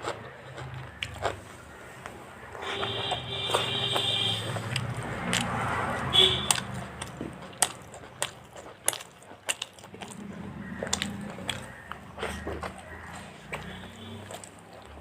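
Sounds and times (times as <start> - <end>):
biting and chewing: 0.0 - 15.0
crisp crunching: 6.6 - 13.0.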